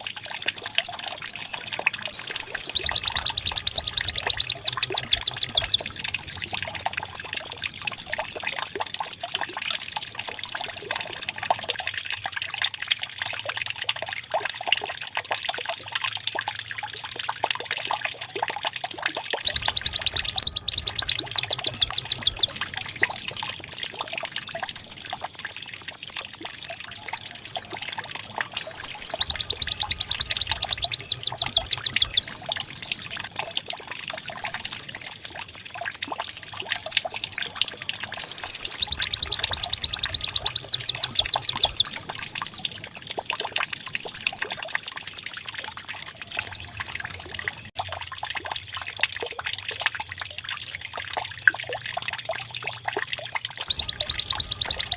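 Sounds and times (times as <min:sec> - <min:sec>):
recorded bird song trilling: 0:00.0 - 0:11.4, 0:19.5 - 0:47.7, 0:53.7 - 0:54.9
faint water trickle: 0:00.0 - 0:54.9.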